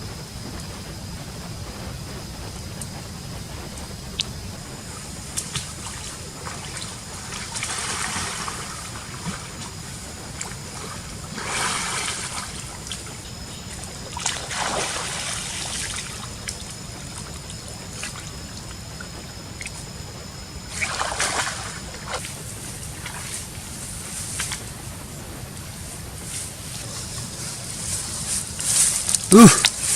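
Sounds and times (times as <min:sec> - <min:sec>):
steady rain: 0:00.0 - 0:29.9
loud bursts of noise: 0:27.7 - 0:29.9.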